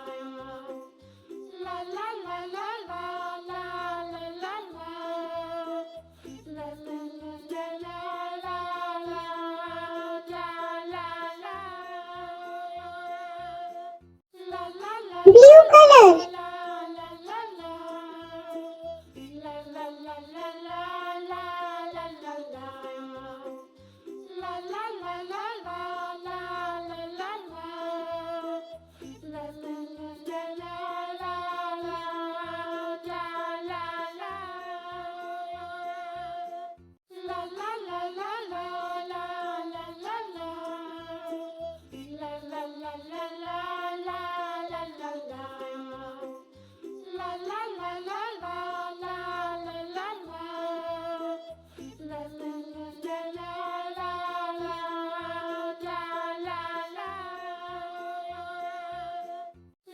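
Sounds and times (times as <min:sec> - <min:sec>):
child singing children's song: 0:15.3 - 0:16.3, 0:37.1 - 0:46.4, 0:47.0 - 0:59.3.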